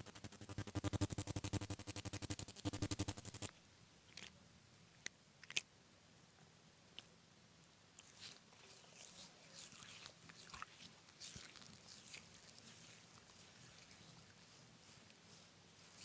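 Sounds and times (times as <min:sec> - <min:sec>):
blade scraping along skin: 0:00.0 - 0:03.5, 0:08.2 - 0:16.0.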